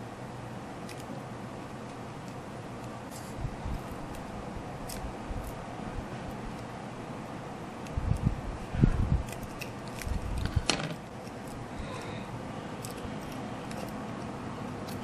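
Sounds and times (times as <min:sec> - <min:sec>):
handling bumps and thuds: 0:10.4 - 0:11.1.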